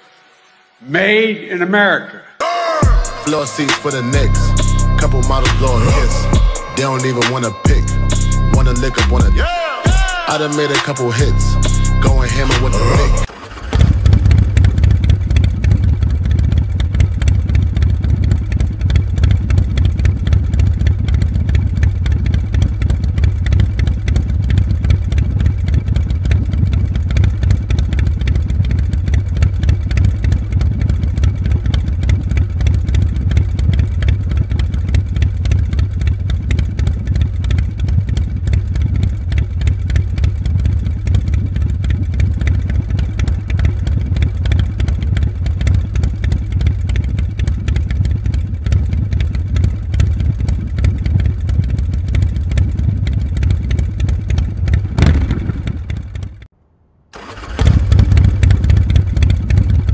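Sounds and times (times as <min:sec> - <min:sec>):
motorcycle engine running: 0:02.8 - 0:56.6, 0:57.2 - 0:59.9.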